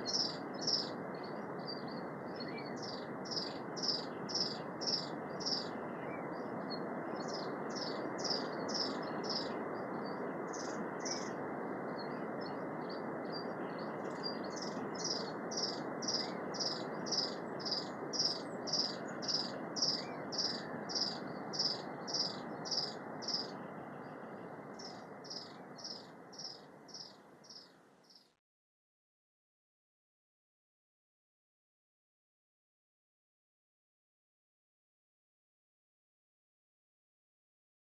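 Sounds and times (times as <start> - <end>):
steady rushing noise: 0.0 - 27.6.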